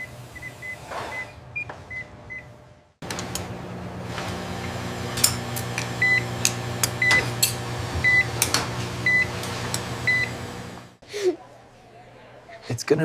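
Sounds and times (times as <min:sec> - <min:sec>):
equipment hum: 0:00.0 - 0:11.3
patient monitor beeping: 0:06.0 - 0:06.4, 0:08.0 - 0:08.4, 0:09.0 - 0:09.4, 0:10.0 - 0:10.4.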